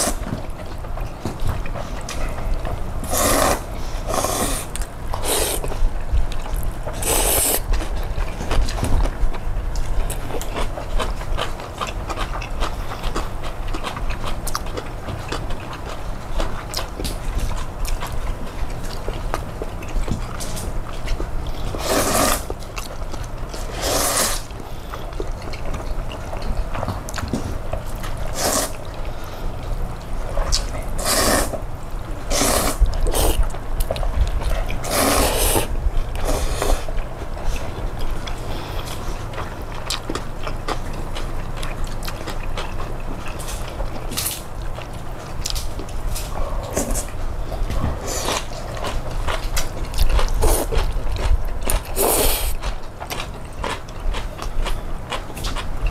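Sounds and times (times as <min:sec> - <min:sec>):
person slurping noodles: 0:00.0 - 0:00.2, 0:03.0 - 0:05.7, 0:07.0 - 0:07.7, 0:21.8 - 0:22.5, 0:23.6 - 0:24.5, 0:28.3 - 0:28.8, 0:31.0 - 0:31.6, 0:32.3 - 0:33.4, 0:34.8 - 0:36.9, 0:52.0 - 0:52.6
steady low hum: 0:00.0 - 0:55.9.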